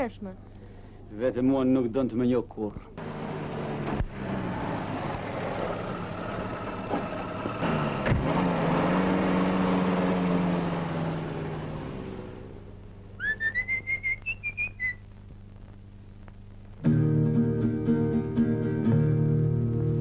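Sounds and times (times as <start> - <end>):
car engine running: 3.0 - 13.2
rising whistled notes: 13.2 - 15.0.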